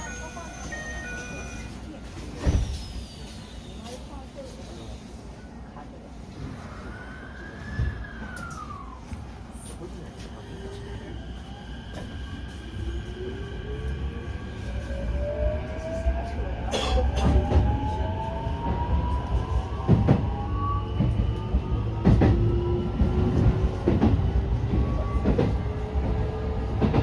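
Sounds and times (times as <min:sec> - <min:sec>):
train running rumble: 0:11.9 - 0:27.0.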